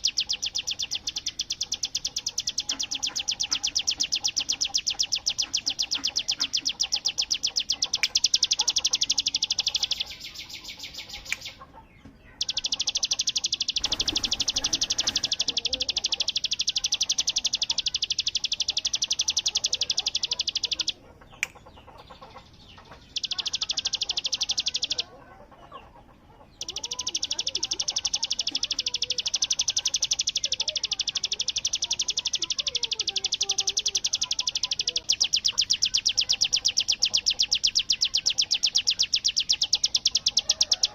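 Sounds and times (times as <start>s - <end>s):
bird rattling song: 0.0s - 40.9s
lower bird chirping: 0.0s - 40.9s.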